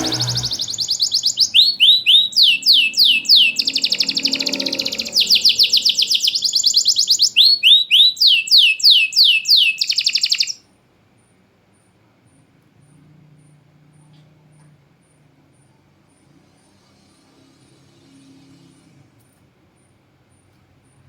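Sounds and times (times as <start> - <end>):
canary singing: 0.0 - 10.6.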